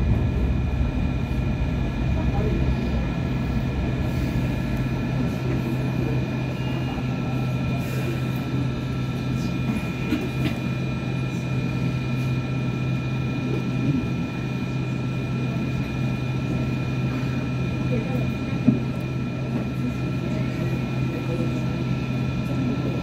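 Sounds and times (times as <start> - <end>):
low motor hum: 0.0 - 7.7.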